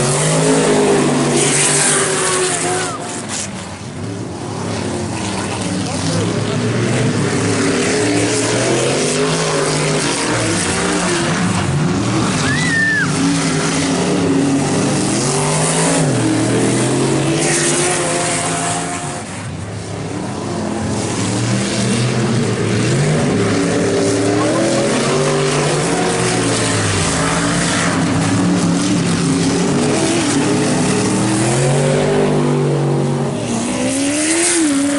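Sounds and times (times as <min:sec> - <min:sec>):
race truck engines revving: 0:00.0 - 0:34.9
short high squeal: 0:12.4 - 0:13.2.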